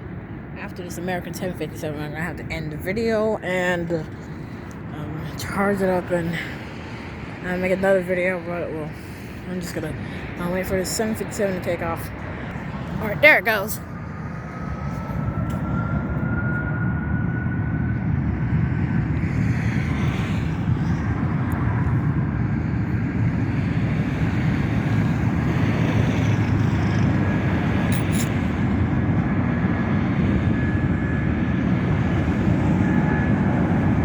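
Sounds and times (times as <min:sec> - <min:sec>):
jet taking off rumble: 0:09.7 - 0:34.0
jet engine whine rising: 0:11.2 - 0:34.0.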